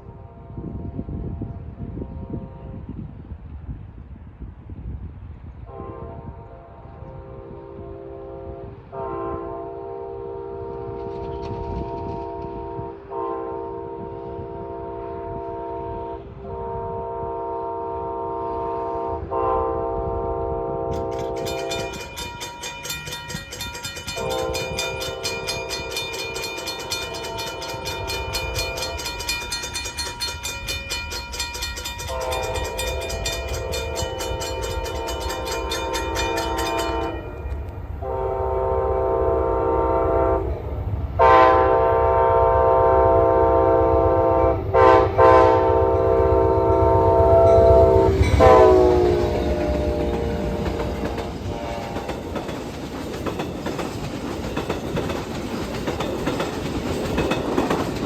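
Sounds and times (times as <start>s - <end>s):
passing train rumble: 0.0s - 58.0s
locomotive horn blasts: 5.7s - 22.4s, 24.0s - 30.8s, 31.8s - 40.6s, 41.2s - 52.2s
crossing bell ringing: 20.9s - 38.2s, 44.8s - 58.0s.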